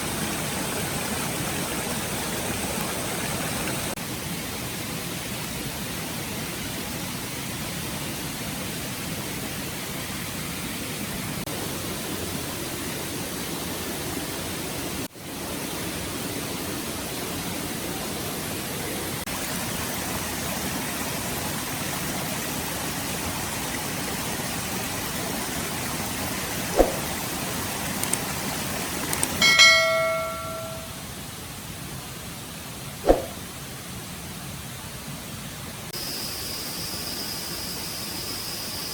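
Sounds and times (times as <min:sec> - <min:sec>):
stream water running: 0:00.0 - 0:05.9, 0:15.4 - 0:31.0.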